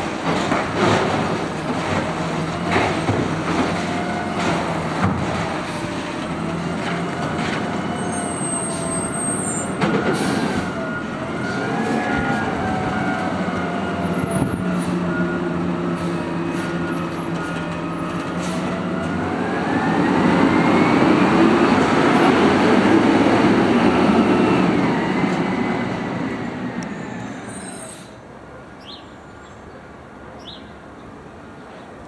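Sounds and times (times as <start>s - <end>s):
cart knocking and banging: 0.0s - 8.4s
hydraulics whining: 0.0s - 28.1s.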